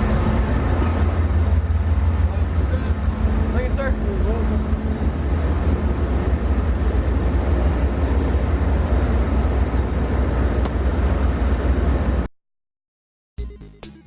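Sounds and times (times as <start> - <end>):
moving vehicle rumble: 0.0 - 12.3.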